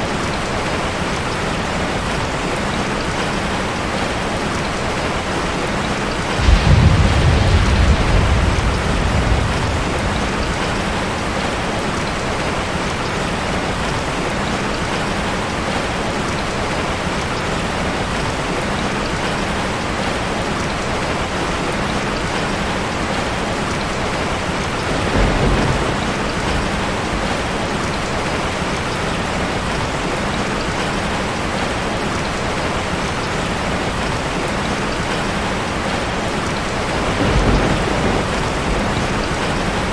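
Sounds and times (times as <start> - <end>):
rain on a metal roof: 0.0 - 39.9
thunder rumbling: 6.2 - 13.0, 24.7 - 28.4, 35.0 - 39.9.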